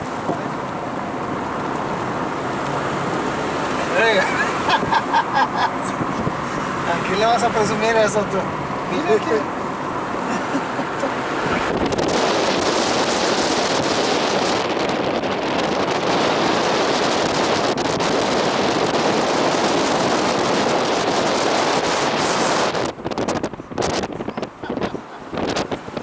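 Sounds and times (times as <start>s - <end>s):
wind on microphone: 4.3s - 7.6s, 8.3s - 26.0s.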